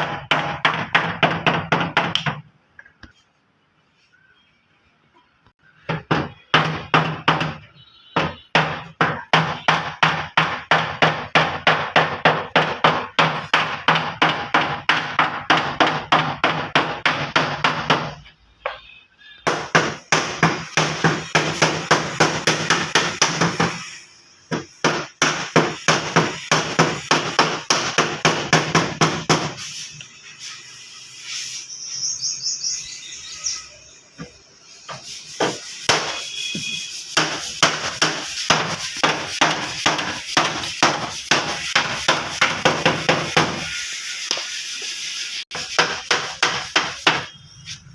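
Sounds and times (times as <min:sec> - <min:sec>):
hammer blows on sheet metal: 0:05.8 - 0:29.9, 0:34.2 - 0:44.6.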